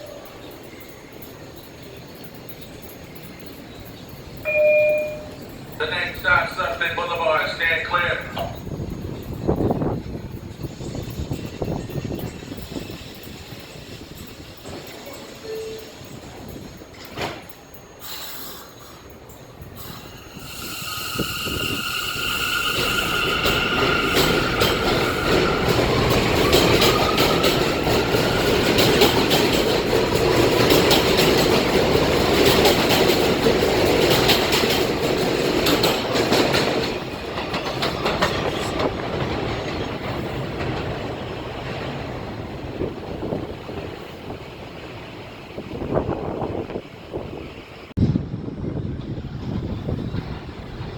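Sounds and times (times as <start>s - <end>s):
train wheel squeal: 8.6s - 29.9s
wheels clattering over rail joints: 22.8s - 47.3s.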